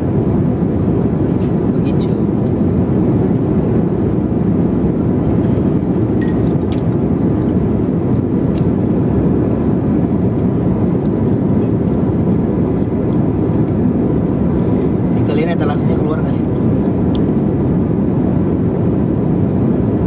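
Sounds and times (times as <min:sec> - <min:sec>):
jet airliner cabin noise: 0:00.0 - 0:20.0
faint clinks: 0:06.2 - 0:06.6.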